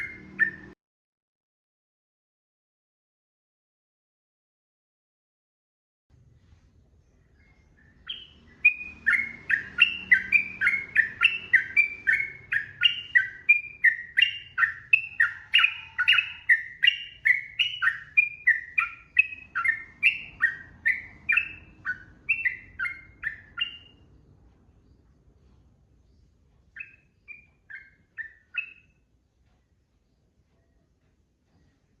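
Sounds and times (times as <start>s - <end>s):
bird singing falling notes: 7.2s - 24.0s.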